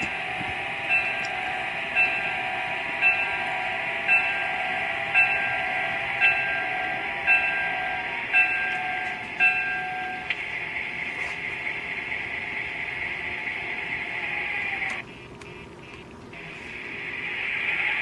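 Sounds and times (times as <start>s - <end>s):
locomotive bell striking: 0.0s - 10.4s
locomotive running whine: 0.0s - 18.0s.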